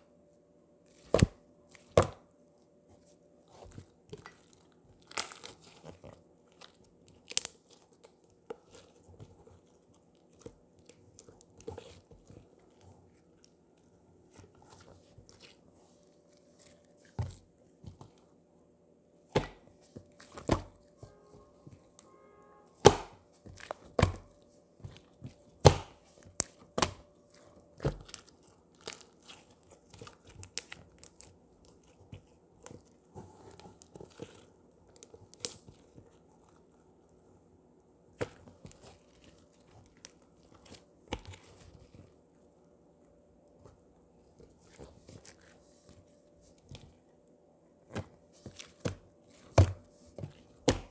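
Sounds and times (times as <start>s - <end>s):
slime squished by hand: 3.5s - 13.4s, 22.8s - 36.8s.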